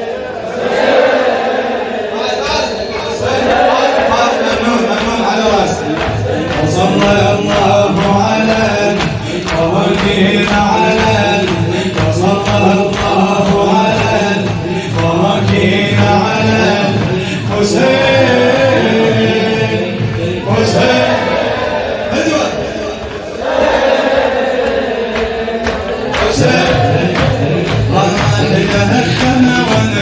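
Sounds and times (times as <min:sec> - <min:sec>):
male voices chanting: 0:00.0 - 0:30.0
sharp rhythmic strikes: 0:02.6 - 0:23.4.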